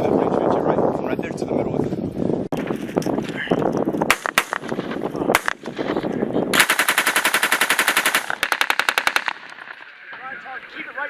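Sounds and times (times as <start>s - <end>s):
machine-gun fire: 4.1s - 4.7s, 5.4s - 5.7s, 6.5s - 9.8s.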